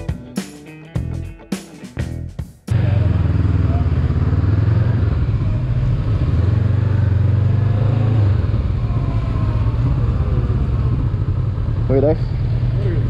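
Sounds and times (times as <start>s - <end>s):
motorcycle engine running: 2.7s - 13.0s.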